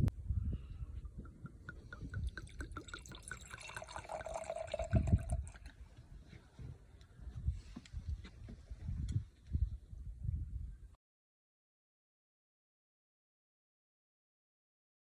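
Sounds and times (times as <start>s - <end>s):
liquid glugging while poured: 1.2s - 5.8s.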